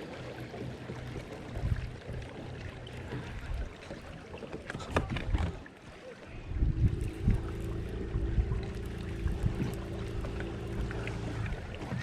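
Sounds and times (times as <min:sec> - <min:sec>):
low rumble of wind and water: 0:00.0 - 0:12.0
knocks on boat: 0:00.9 - 0:05.6.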